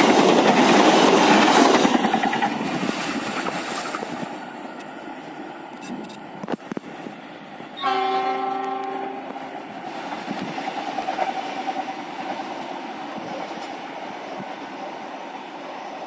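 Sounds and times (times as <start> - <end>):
train wheels rumbling on rails: 0.0 - 16.0
train horn blast: 7.8 - 9.4.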